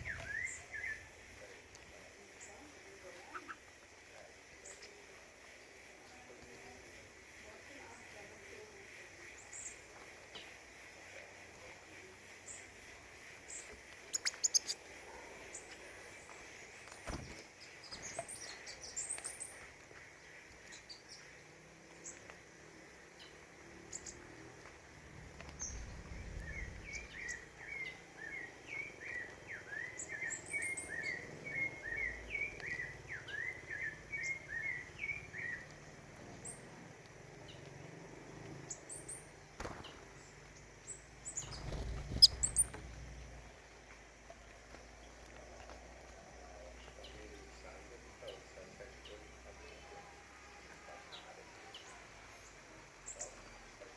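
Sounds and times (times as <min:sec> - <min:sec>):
songbirds chirping: 0:00.0 - 0:53.9
bird warbling: 0:41.4 - 0:42.8.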